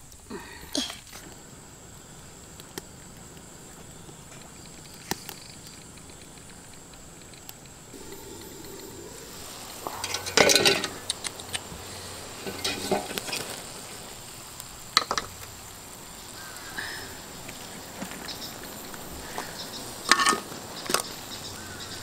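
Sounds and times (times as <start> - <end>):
food sizzling in a pan: 7.9 - 22.0.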